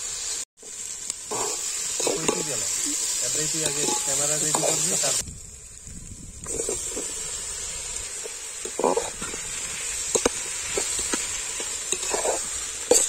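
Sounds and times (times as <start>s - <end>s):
vegetables sizzling in a pot: 0.0s - 13.0s
metal spatula scraping a pot: 3.6s - 4.8s, 10.1s - 13.0s.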